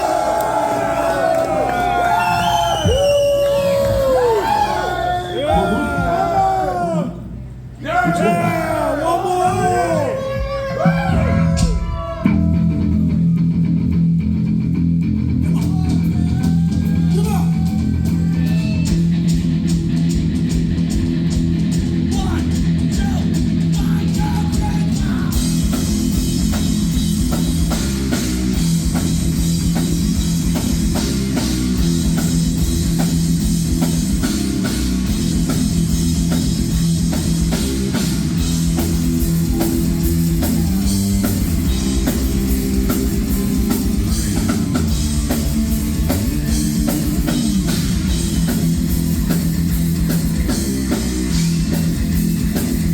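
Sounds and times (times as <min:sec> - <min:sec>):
heavy metal band playing live: 0:09.4 - 0:52.9.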